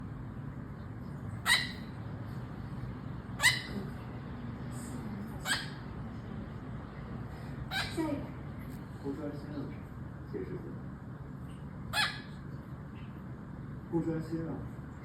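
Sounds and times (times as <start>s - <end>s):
parrot imitating dog bark: 1.4s - 1.9s, 3.4s - 3.9s, 5.4s - 5.8s, 7.7s - 8.0s, 11.9s - 12.4s.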